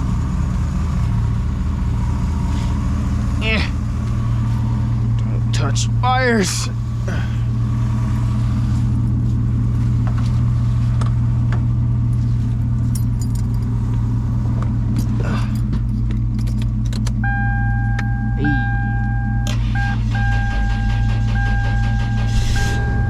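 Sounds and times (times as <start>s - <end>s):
car engine idling: 0.0s - 23.0s
keys jangling: 12.8s - 13.8s, 14.9s - 17.2s
two-note electronic warning chime: 17.2s - 23.0s.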